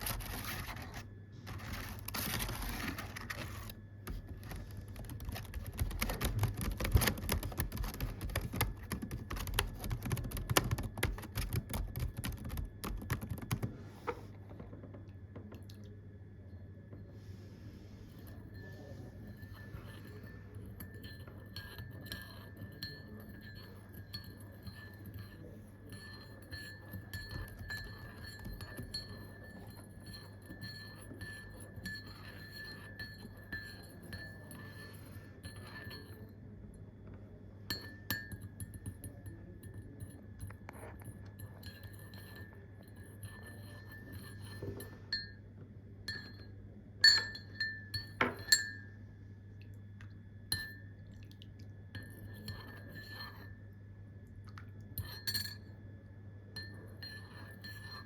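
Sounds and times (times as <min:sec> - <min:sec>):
low steady hum: 0:00.0 - 0:58.0
glass ringing tone: 0:18.1 - 0:36.4, 0:37.6 - 0:49.0, 0:50.4 - 0:51.0, 0:55.0 - 0:55.9, 0:56.5 - 0:58.0
glass clinks: 0:37.7 - 0:40.2, 0:46.1 - 0:48.9, 0:55.0 - 0:55.7.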